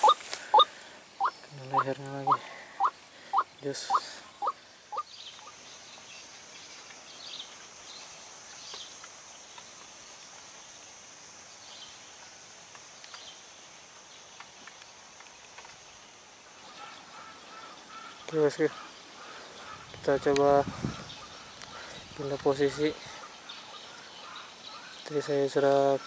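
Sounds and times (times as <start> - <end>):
faint chirps: 0.0 - 7.5.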